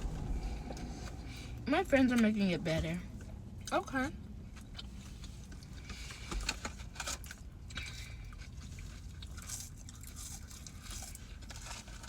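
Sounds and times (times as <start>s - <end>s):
chewing food with crunches: 4.5s - 12.0s.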